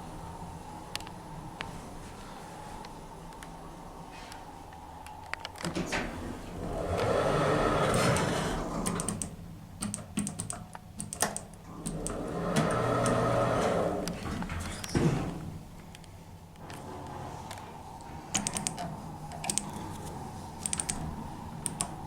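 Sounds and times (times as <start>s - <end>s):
door mechanism clicks and clunks: 5.4s - 20.0s
lift doors sliding rattling: 5.6s - 9.5s, 11.6s - 15.8s, 16.6s - 22.0s.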